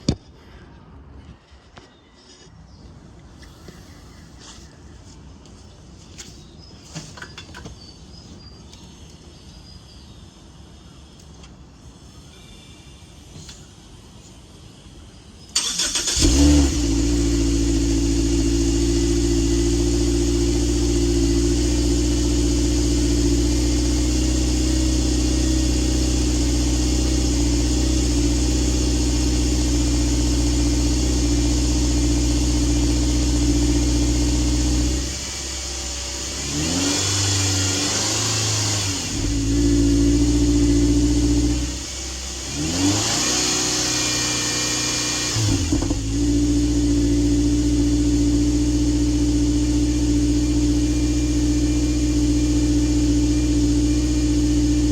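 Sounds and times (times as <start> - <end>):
car engine starting and idling: 15.5 - 54.9
engine revving: 15.6 - 54.9.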